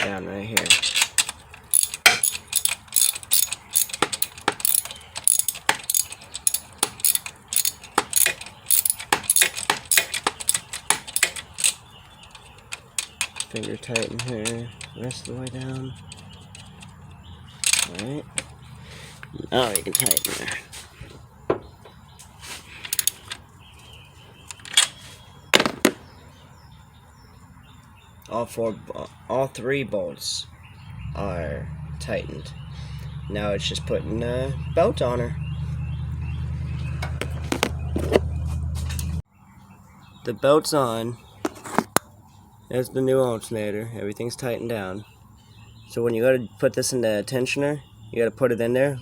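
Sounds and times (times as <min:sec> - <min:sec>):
hand ratchet clicking: 0:00.7 - 0:17.0, 0:19.7 - 0:20.4, 0:22.9 - 0:23.3
loud metallic knocks: 0:03.3 - 0:11.8.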